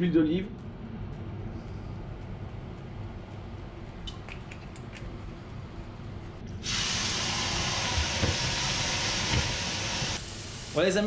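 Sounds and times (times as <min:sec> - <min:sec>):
prawns sizzling in oil: 0:06.6 - 0:11.0.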